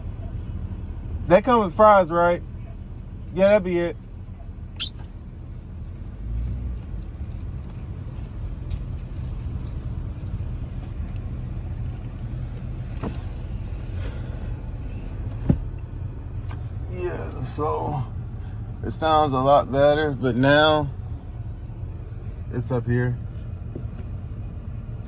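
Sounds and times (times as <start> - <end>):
car cabin rumble: 7.3 - 18.0, 20.3 - 25.0.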